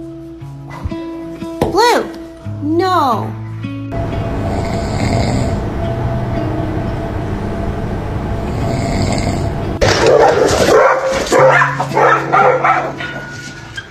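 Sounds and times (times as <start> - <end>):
dog barking and growling: 9.8 - 13.4.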